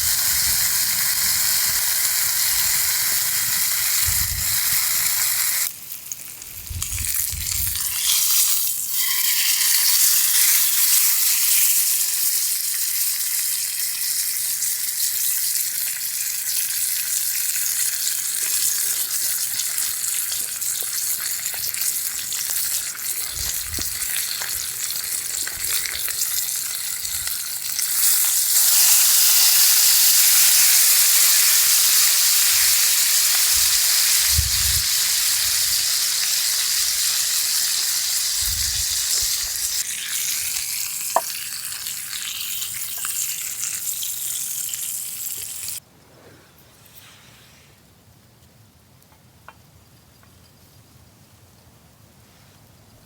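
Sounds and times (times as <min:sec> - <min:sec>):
food sizzling on a grill: 0:00.0 - 0:45.8.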